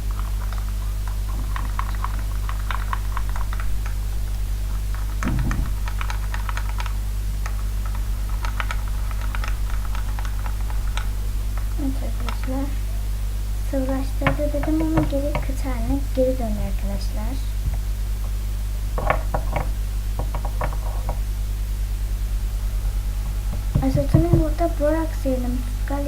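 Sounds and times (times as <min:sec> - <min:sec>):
steady low hum: 0:00.0 - 0:26.0
low thump: 0:05.2 - 0:05.9.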